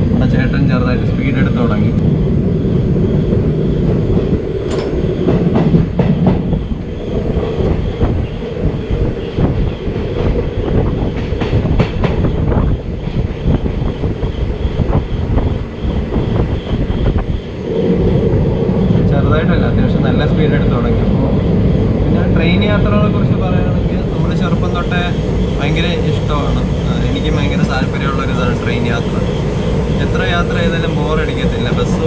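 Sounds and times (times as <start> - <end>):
train wheels rumbling on rail: 0.0 - 32.0
track clicks and clatter: 7.7 - 17.3.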